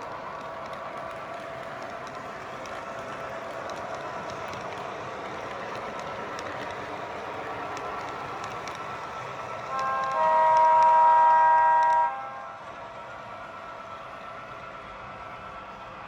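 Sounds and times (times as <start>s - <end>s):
model train diesel engine sound: 0.0s - 16.0s
faint clicks: 0.3s - 9.0s, 9.6s - 11.0s, 11.7s - 12.0s
model train horn blowing: 9.7s - 12.6s.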